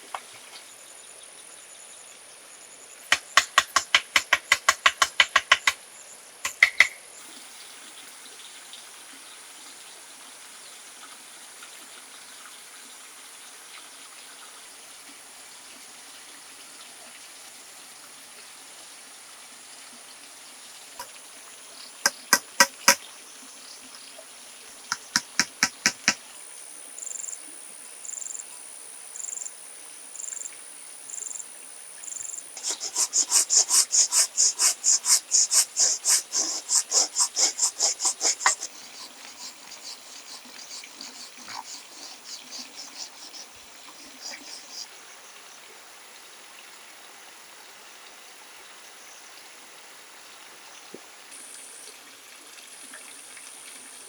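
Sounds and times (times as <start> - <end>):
insect chirping: 2.8 - 8.5, 21.0 - 23.8, 24.6 - 45.6
rapid clicking pulses: 3.1 - 5.8, 6.5 - 7.0, 22.1 - 23.0, 24.9 - 26.2, 32.6 - 44.8
high-pitched insect drone: 24.9 - 26.2, 32.1 - 45.0.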